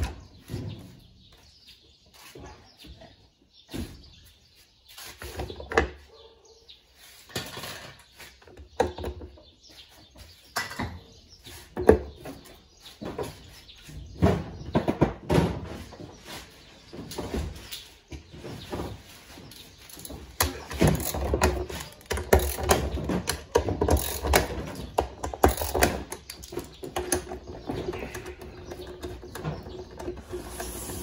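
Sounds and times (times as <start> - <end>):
hard parts knocking and scraping: 16.9 - 31.0.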